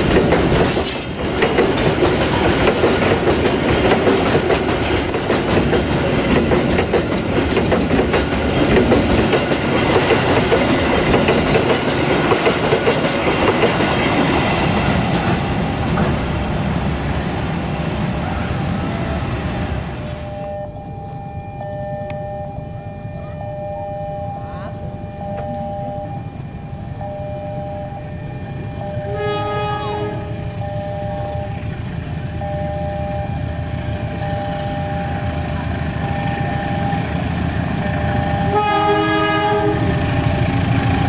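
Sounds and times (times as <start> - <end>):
level-crossing warning alarm: 0.0 - 15.2, 18.0 - 41.0
train wheels clacking on rails: 0.0 - 16.6, 35.0 - 41.0.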